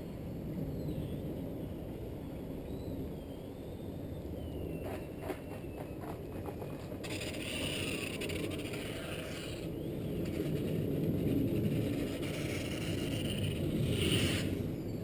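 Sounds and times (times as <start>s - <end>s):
wind buffeting microphone: 0.0s - 15.0s
model plane motor whine: 7.0s - 14.9s.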